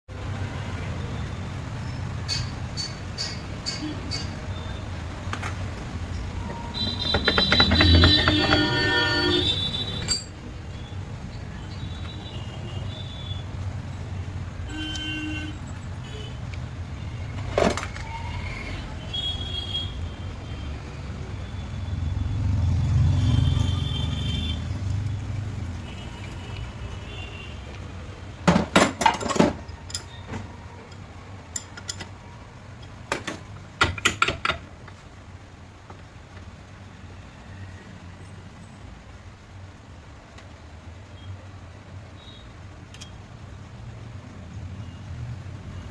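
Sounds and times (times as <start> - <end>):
road traffic rumble: 0.1 - 45.9
metal tools clinking: 9.9 - 10.4, 29.0 - 30.2
vehicle passing: 21.9 - 23.8.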